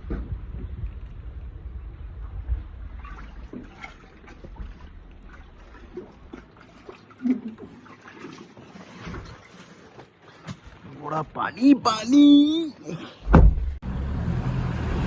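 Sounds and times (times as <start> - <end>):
wind rumble on microphone: 0.0 - 6.4
floodwater splashing and trickling: 0.0 - 15.0.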